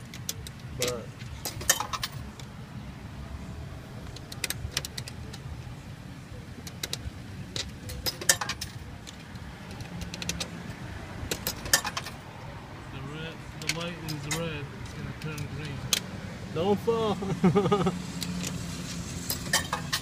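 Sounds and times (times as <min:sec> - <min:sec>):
coins clinking into coin slot: 0:00.2 - 0:02.2, 0:07.6 - 0:08.8.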